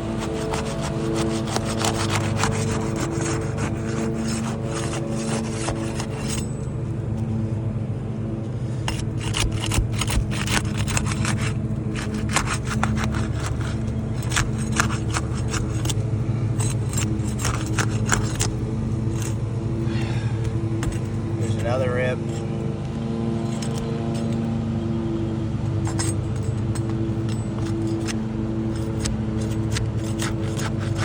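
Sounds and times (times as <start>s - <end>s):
shingle scraping on roof: 0.0s - 6.4s, 8.7s - 22.5s, 25.9s - 31.0s
sharp clicks of tearing shingle: 0.0s - 6.6s, 8.8s - 19.4s, 20.4s - 22.6s, 25.9s - 31.0s
steady engine hum: 0.0s - 31.0s.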